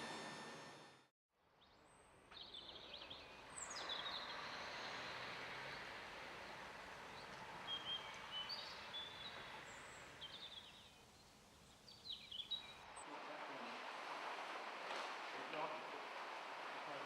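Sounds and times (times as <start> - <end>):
outdoor background hiss: 0.0 - 17.0
small birds chirping: 1.9 - 13.6.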